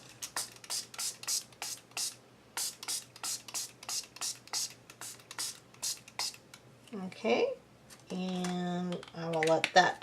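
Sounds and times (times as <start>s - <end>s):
spray bottle spritzing: 0.2s - 6.4s.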